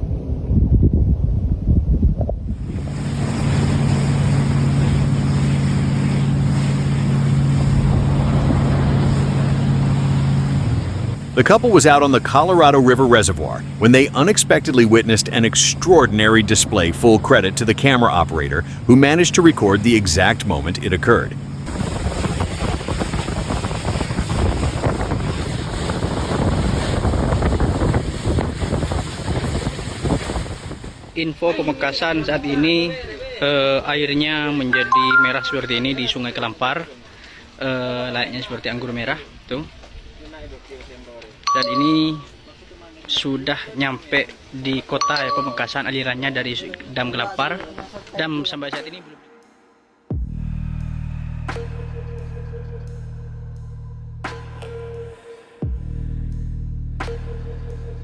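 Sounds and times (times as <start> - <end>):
wind buffeting microphone: 0.0 - 11.2, 21.6 - 31.2
water rushing past hull: 2.5 - 31.2
motorboat engine running: 2.6 - 31.2.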